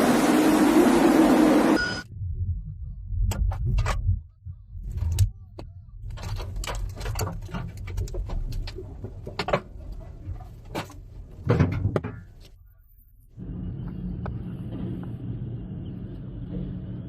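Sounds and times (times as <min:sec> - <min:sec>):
low rumbling wind: 0:00.0 - 0:12.4
sharp knocks and clattering bangs: 0:06.1 - 0:12.5.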